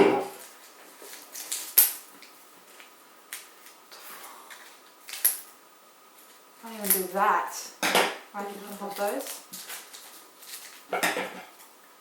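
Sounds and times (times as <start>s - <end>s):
candy packets clicking and crinkling: 4.6s - 5.5s, 8.5s - 10.9s.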